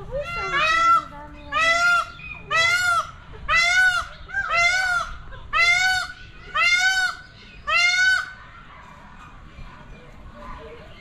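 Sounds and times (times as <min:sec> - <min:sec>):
large bird calling loudly: 0:00.0 - 0:08.5.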